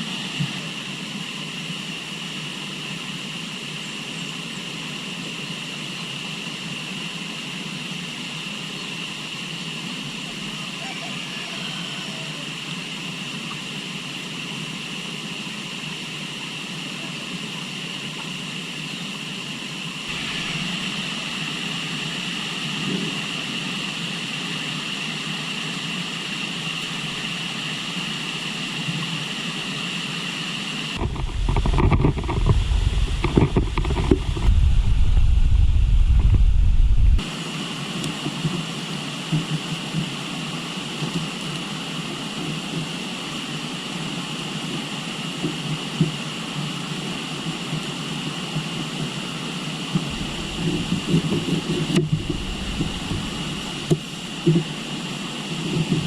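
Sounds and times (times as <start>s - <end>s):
river water rushing: 20.1s - 22.4s, 50.1s - 56.0s
wind buffeting microphone: 31.0s - 37.2s, 50.0s - 56.0s.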